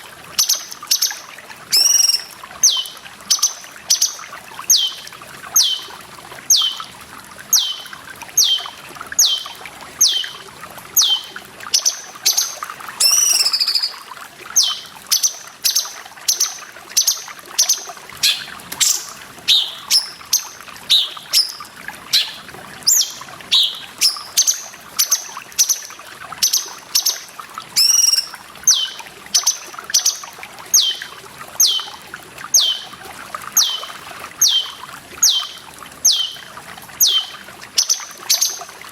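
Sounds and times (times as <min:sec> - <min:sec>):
trickling water: 0:00.0 - 0:38.9
bird whistling short notes: 0:01.7 - 0:02.8, 0:13.0 - 0:14.0, 0:27.8 - 0:28.9
wavering bird call: 0:01.7 - 0:06.9, 0:07.5 - 0:10.4, 0:11.0 - 0:12.4, 0:13.0 - 0:14.0, 0:14.6 - 0:15.9, 0:17.0 - 0:25.8, 0:27.8 - 0:30.2, 0:30.8 - 0:32.0, 0:32.6 - 0:33.0, 0:33.6 - 0:38.5.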